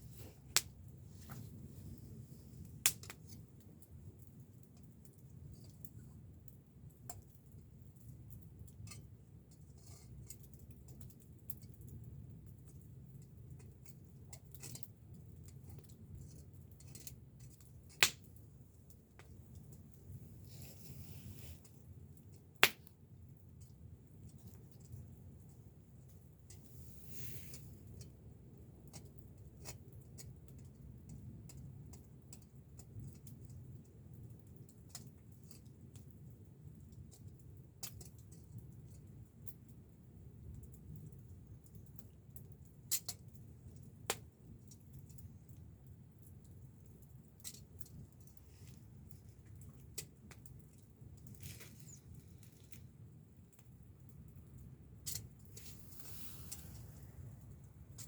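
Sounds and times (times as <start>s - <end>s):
low steady rumble: 0.0s - 4.7s, 43.4s - 58.0s
campfire crackling: 0.0s - 58.0s.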